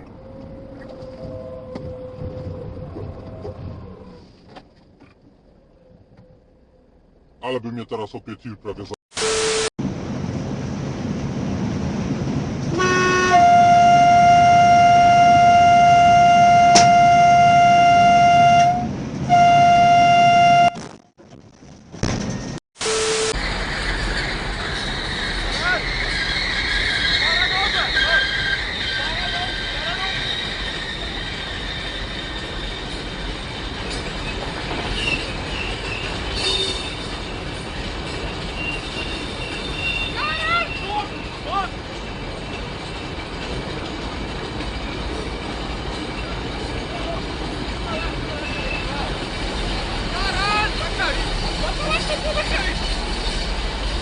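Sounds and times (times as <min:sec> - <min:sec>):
wheels squealing on rails: 0:00.0 - 0:04.6, 0:22.3 - 0:54.0
train rolling past: 0:09.8 - 0:20.4, 0:23.3 - 0:54.0
train horn blast: 0:12.7 - 0:20.8.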